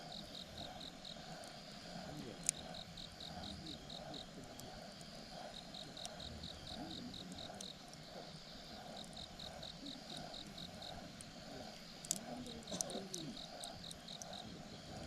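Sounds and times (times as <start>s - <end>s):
campfire crackles: 0.0s - 15.0s
crickets chirping: 0.0s - 15.0s
pulsing insect or frog chorus: 0.0s - 15.0s.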